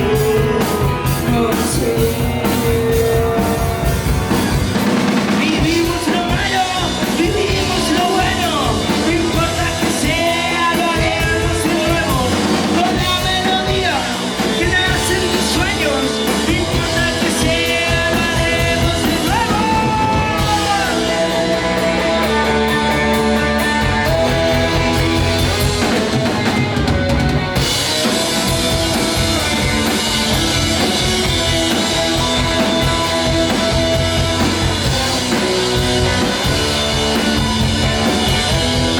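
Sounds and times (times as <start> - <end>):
person singing: 0.0 - 4.2, 5.2 - 26.6
bass guitar: 0.0 - 38.9
drum kit: 0.0 - 38.9
guitars: 0.0 - 38.9.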